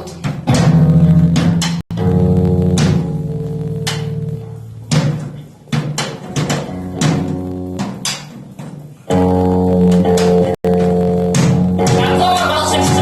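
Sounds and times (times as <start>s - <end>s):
drum hits: 0.1s - 8.8s, 9.8s - 13.0s
sustained guitar chord: 1.9s - 5.0s, 9.1s - 13.0s.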